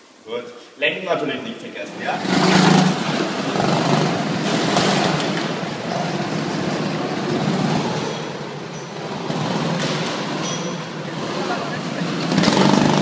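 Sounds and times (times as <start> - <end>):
go-kart engines running: 1.9 - 13.0.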